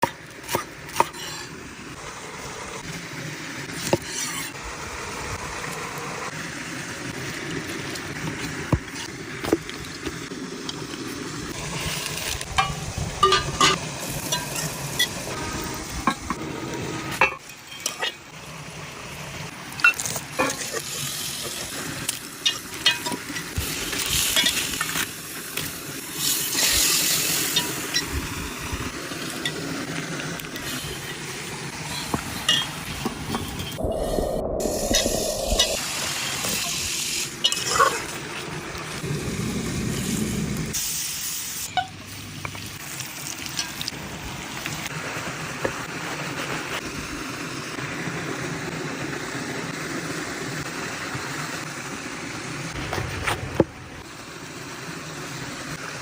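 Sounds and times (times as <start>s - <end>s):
food sizzling in a pan: 0.5s - 2.7s, 10.8s - 34.0s, 34.7s - 44.9s.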